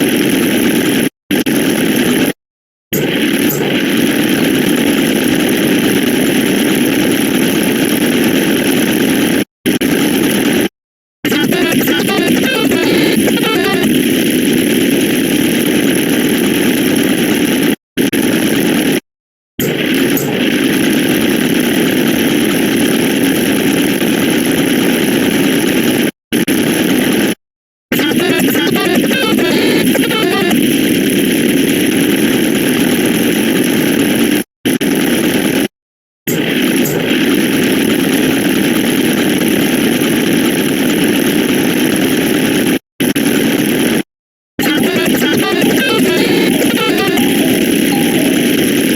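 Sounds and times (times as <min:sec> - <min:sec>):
dense layered sound effects: 0:45.4 - 0:48.6.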